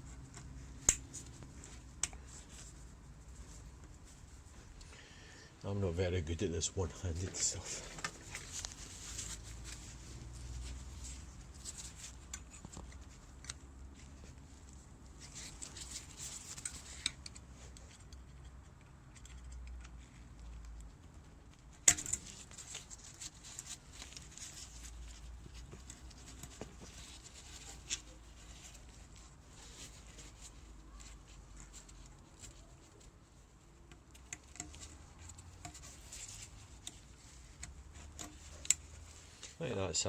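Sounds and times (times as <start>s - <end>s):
metal clip scraping and clicking: 21.5s - 24.4s, 33.9s - 39.6s.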